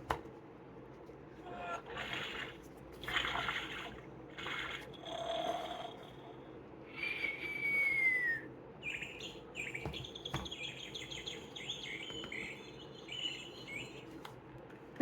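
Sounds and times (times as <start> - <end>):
falling bird whistle: 7.0 - 14.0.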